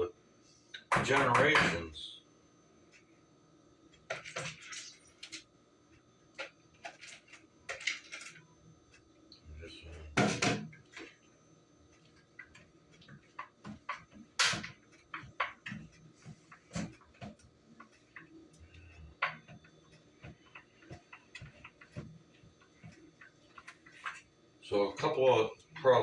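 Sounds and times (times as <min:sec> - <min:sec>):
utensil knocking mixing bowl: 0:00.9 - 0:01.8.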